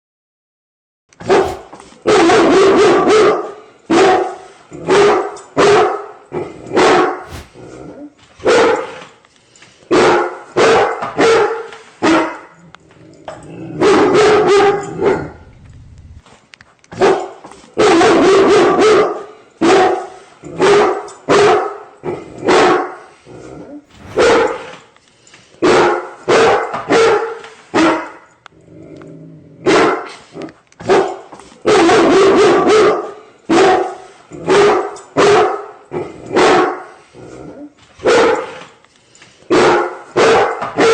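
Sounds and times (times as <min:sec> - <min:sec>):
dog barking: 0:38.0 - 0:38.6, 0:39.5 - 0:40.9.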